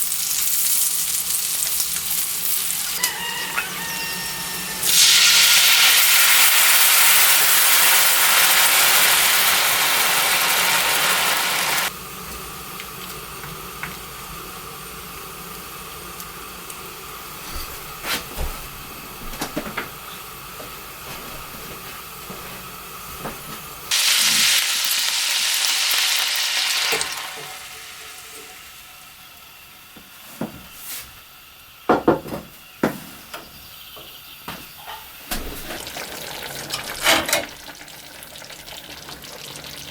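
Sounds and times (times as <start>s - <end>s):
food sizzling in frying pan: 0.0s - 16.5s, 23.9s - 29.7s, 35.6s - 39.9s.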